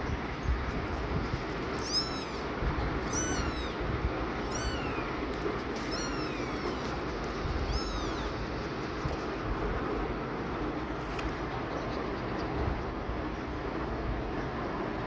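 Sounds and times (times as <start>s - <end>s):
kitten mewing: 1.7s - 8.6s.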